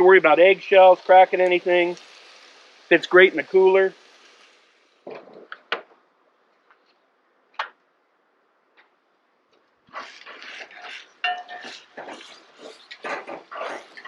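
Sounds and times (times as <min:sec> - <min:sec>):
food scraping in a pan: 0:09.9 - 0:14.0.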